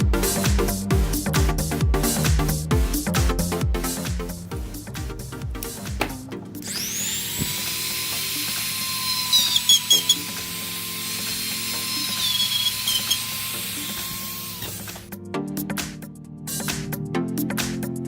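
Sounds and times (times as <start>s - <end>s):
background music: 0.0s - 18.0s
mini drill whining: 6.6s - 15.1s.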